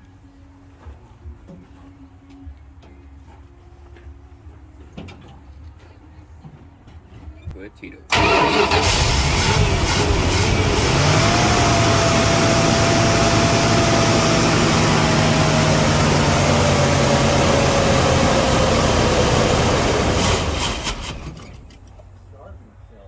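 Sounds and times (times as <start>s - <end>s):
steady whine: 8.1s - 22.6s
truck engine idling: 8.1s - 23.0s.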